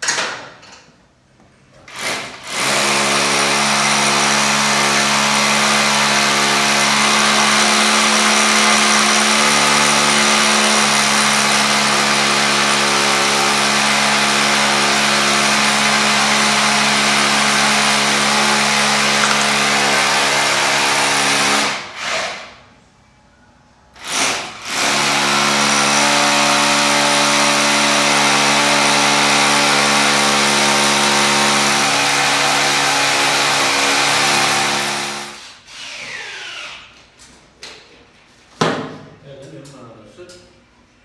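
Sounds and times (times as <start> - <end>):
electric power tool running: 6.7 - 21.8.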